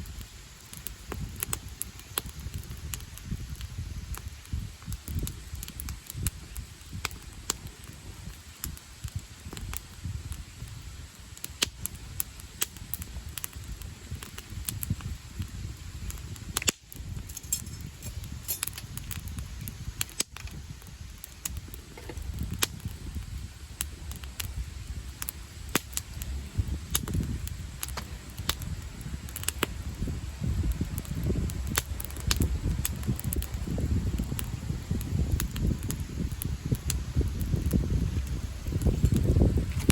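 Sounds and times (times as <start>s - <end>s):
campfire crackling and popping: 0.0s - 39.9s
low rumbling noise: 21.6s - 39.9s.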